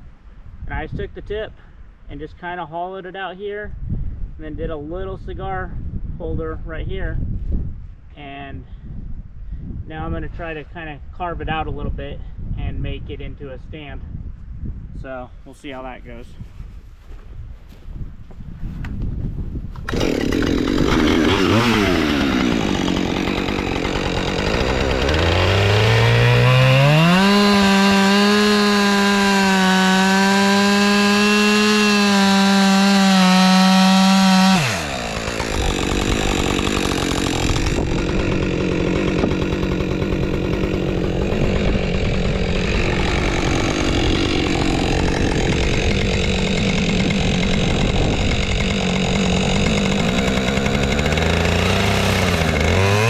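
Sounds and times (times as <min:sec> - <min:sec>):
chainsaw carving into a log: 0:19.8 - 0:53.0.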